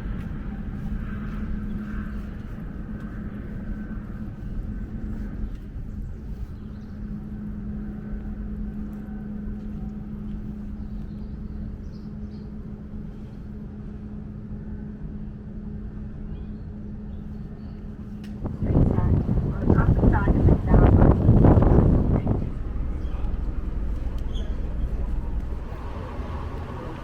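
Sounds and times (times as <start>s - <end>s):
vehicle engine drone: 0.0s - 27.0s.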